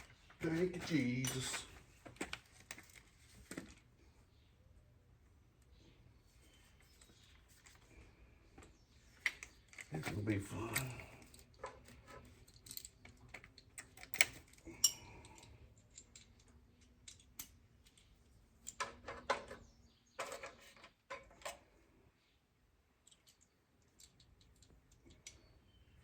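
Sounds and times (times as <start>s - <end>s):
metal clicks of hand tools: 9.2s - 19.2s.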